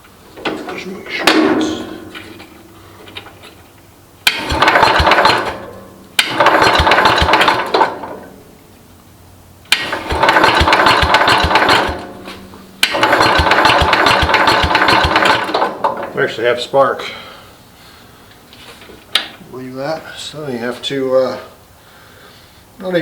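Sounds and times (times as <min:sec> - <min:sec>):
engine cranking without starting: 0:04.2 - 0:08.4, 0:09.7 - 0:16.2.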